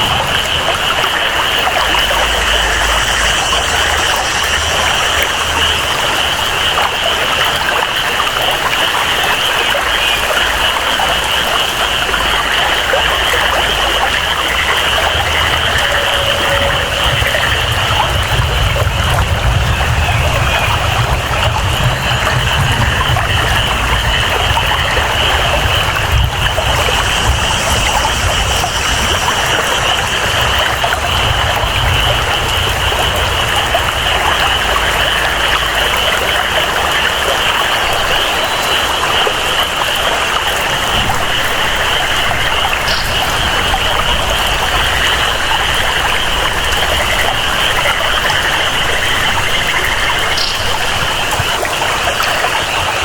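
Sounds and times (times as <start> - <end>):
low rumble: 0.0 - 7.8, 9.8 - 38.3, 40.5 - 52.5
flowing water: 0.0 - 53.0
high-pitched drone: 0.0 - 53.0
rain: 0.0 - 53.0.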